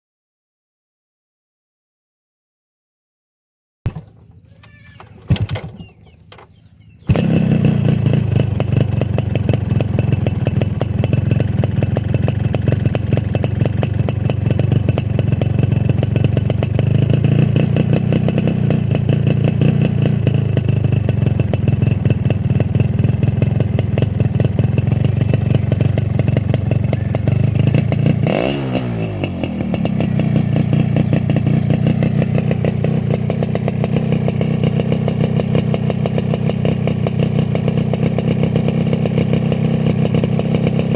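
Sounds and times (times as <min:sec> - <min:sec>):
engine throttle blip: 0:03.9 - 0:16.8
two-stroke motorcycle engine idling: 0:03.9 - 0:40.9.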